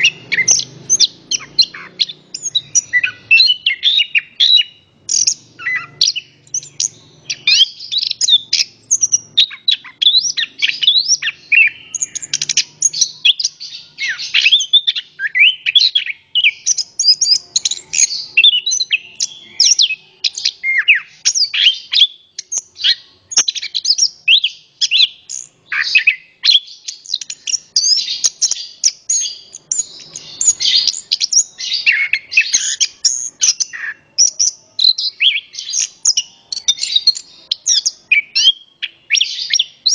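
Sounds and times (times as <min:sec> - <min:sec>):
thrush singing: 0:00.0 - 0:26.4.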